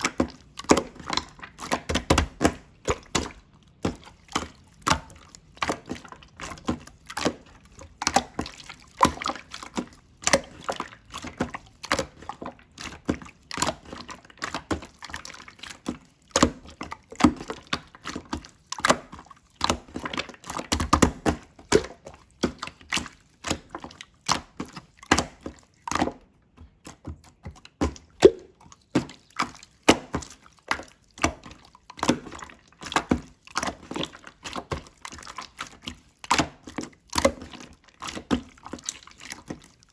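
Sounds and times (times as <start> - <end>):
slime squelch: 0.0 - 39.9
slime popping and clicking: 28.2 - 28.6.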